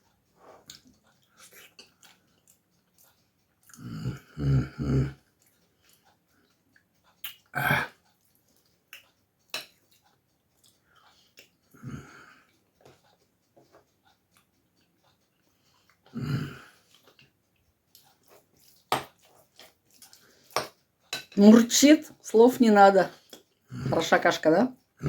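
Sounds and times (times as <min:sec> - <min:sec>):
man chewing: 0:00.0 - 0:21.2, 0:23.1 - 0:23.9
man humming mmm: 0:03.7 - 0:05.2, 0:07.5 - 0:07.9, 0:16.2 - 0:16.7.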